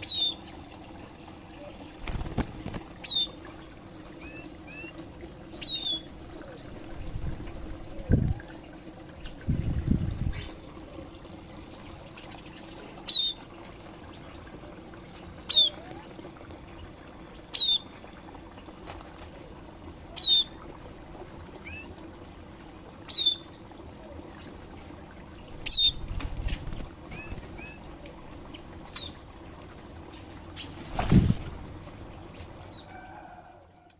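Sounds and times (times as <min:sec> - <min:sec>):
water trickling: 0:00.0 - 0:33.9
small bird calling: 0:03.0 - 0:03.4, 0:04.2 - 0:06.1, 0:13.0 - 0:13.4, 0:15.4 - 0:16.1, 0:17.5 - 0:17.9, 0:23.1 - 0:23.5.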